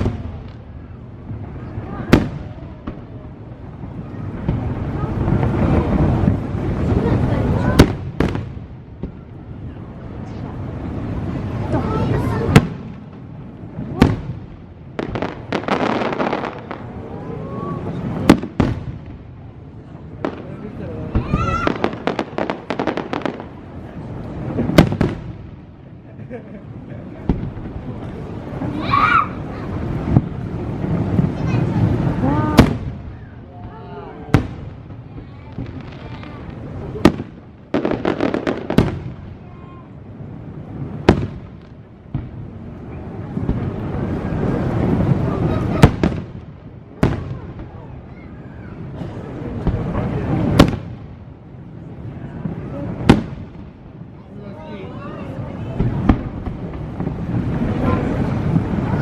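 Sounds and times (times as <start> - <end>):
loud firework bang: 0.0 - 3.2, 3.9 - 9.3, 11.7 - 16.8, 17.4 - 19.3, 24.4 - 25.6, 27.2 - 39.8, 40.8 - 42.4, 43.3 - 51.2, 52.4 - 53.8, 55.7 - 59.0
fireworks bursting and crackling: 0.0 - 59.0.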